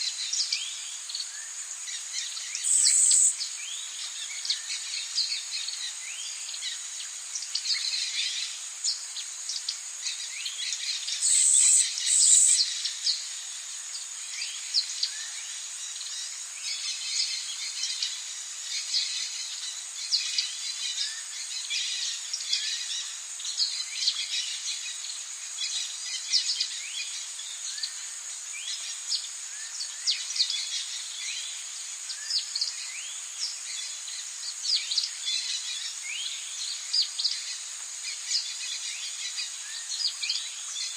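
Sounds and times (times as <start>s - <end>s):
high insect drone: 0.0s - 40.9s
loud shrill bird calls: 2.3s - 3.5s, 11.0s - 13.2s
birds chirping and calling: 2.6s - 3.4s, 11.1s - 13.0s.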